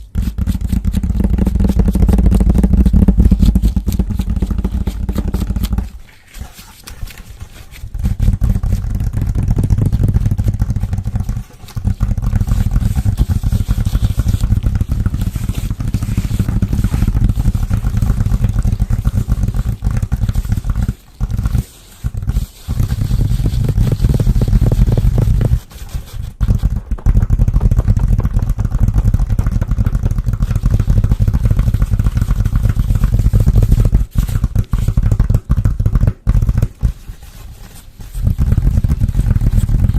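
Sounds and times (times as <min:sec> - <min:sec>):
close scratching: 0:00.0 - 0:26.8, 0:30.4 - 0:35.2, 0:36.6 - 0:39.9.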